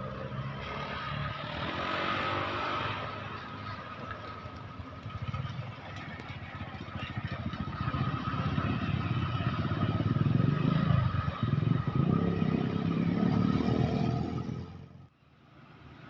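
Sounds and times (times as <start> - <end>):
vehicle engine running: 3.0 - 13.0.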